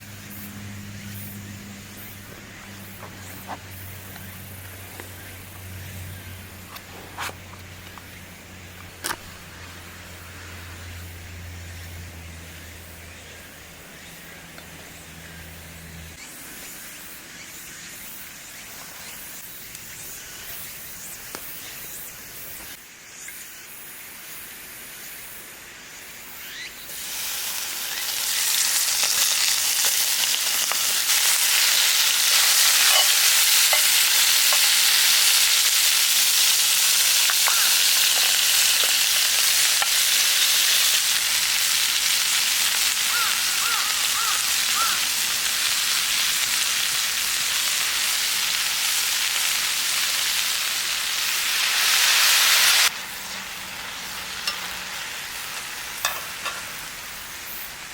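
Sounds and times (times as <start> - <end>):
food sizzling in a hot pan: 26.4 - 57.9.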